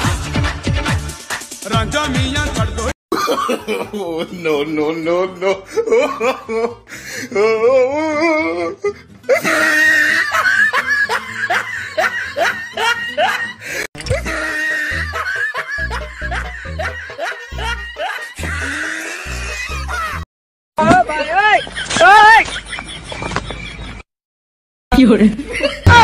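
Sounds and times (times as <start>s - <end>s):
background music: 0.0s - 20.2s
person laughing: 3.2s - 8.7s, 9.3s - 20.2s.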